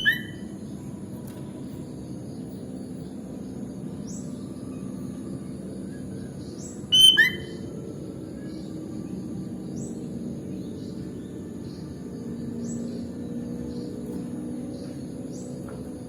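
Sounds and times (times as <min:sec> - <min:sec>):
bird chirping call notes: 0:00.0 - 0:00.5, 0:06.8 - 0:07.8
low background rumble: 0:00.0 - 0:16.0
faint high chirps: 0:06.8 - 0:07.9.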